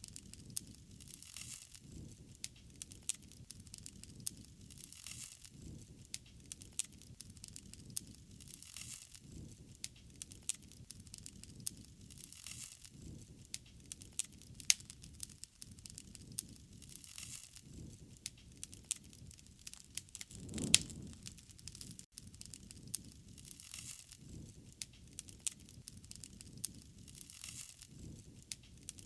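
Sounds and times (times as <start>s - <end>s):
wood fire popping and snapping: 0.1s - 29.0s
hiss of burning: 19.4s - 22.1s.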